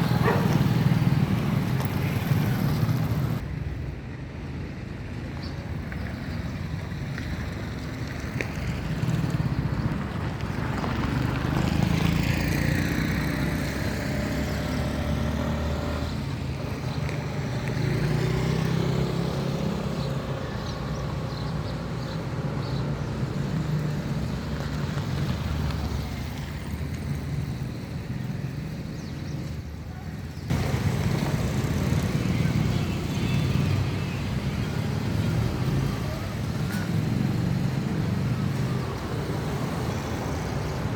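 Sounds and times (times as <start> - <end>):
vehicle engines running: 0.0 - 3.9, 5.0 - 40.9
vehicle passing close by: 8.6 - 16.4.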